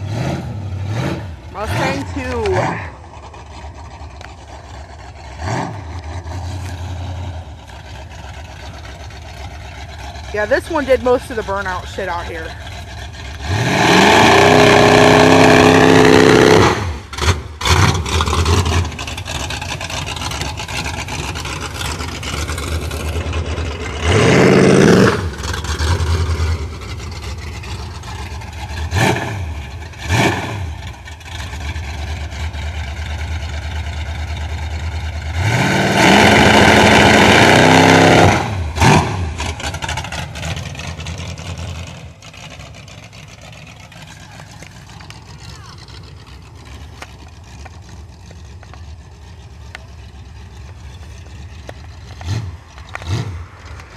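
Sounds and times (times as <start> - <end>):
car engine revving hard: 0.0 - 8.7, 9.9 - 33.4, 34.7 - 43.4, 52.1 - 53.9.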